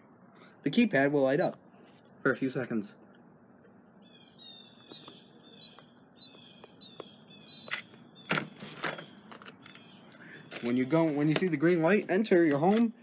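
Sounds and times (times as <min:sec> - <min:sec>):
bird chirping falling notes: 0:04.0 - 0:10.8.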